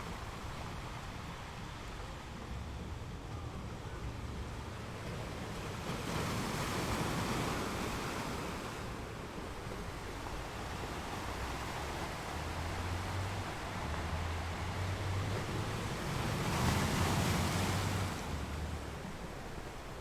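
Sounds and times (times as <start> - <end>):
low rumble of surf: 0.0 - 20.0
wave breaking on shore: 5.1 - 20.0.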